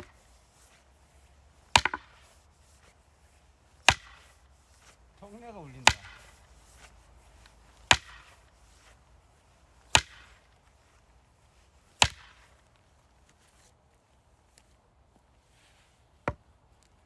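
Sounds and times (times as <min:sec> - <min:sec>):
axe splitting firewood: 0:01.7 - 0:02.3, 0:03.8 - 0:08.5, 0:09.9 - 0:10.4, 0:12.0 - 0:12.5.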